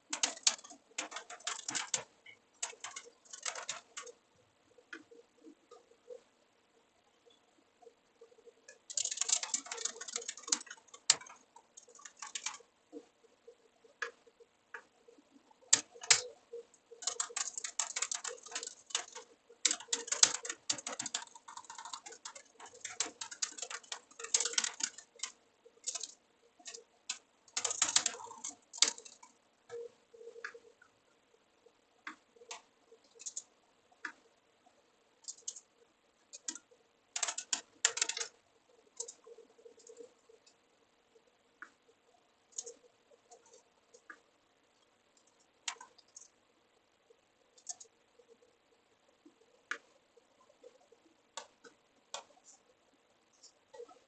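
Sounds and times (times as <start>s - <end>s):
computer keyboard typing: 0.0s - 4.2s, 8.2s - 30.9s, 32.0s - 34.3s, 35.2s - 40.6s, 42.5s - 44.2s, 45.2s - 46.3s, 47.6s - 48.3s, 49.3s - 52.6s, 53.3s - 54.0s.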